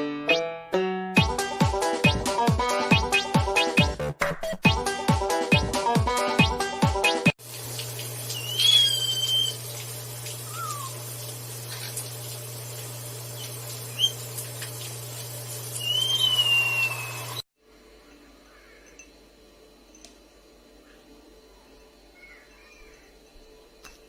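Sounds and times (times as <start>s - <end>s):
parrot whistling: 8.3s - 9.6s, 10.4s - 11.0s, 13.4s - 14.2s, 15.8s - 17.4s.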